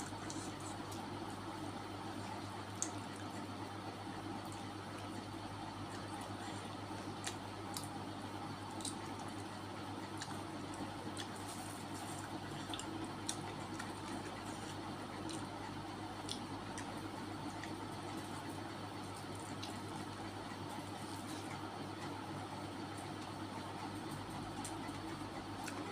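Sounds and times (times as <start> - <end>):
wet chewing mouth sounds: 0.0 - 1.1, 5.8 - 8.0, 8.6 - 18.5
low background hum: 0.0 - 25.9.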